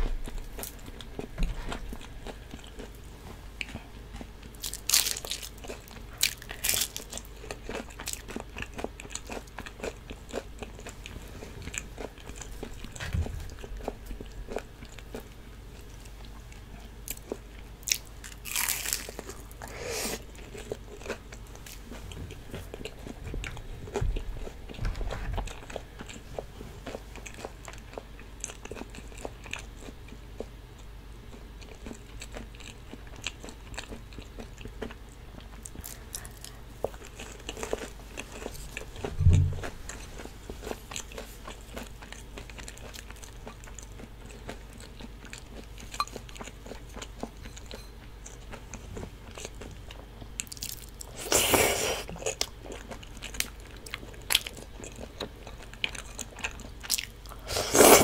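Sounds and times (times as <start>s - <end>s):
crunching fried batter: 0.0s - 23.2s, 31.3s - 58.0s
soft chewing: 0.0s - 58.0s
low thump: 39.1s - 39.7s.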